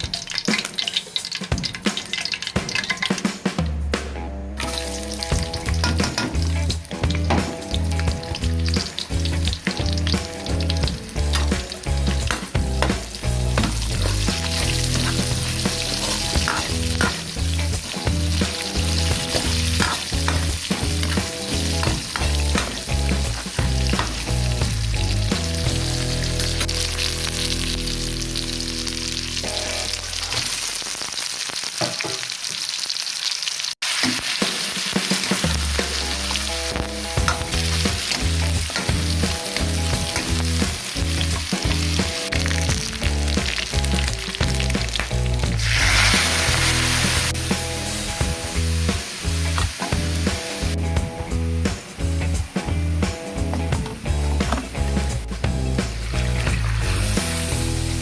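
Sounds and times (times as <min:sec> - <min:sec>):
food sizzling in a pan: 0:00.0 - 0:03.6, 0:04.6 - 0:58.0
background music with steady beat: 0:00.0 - 0:27.7, 0:34.5 - 0:58.0
stirring in a pan: 0:04.6 - 0:26.8.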